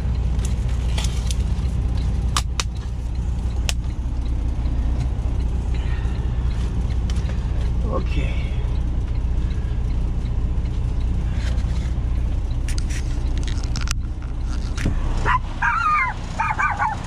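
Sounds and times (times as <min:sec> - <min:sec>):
diesel truck engine idling: 0:00.0 - 0:17.0
dog giving high wavering calls: 0:15.2 - 0:17.0.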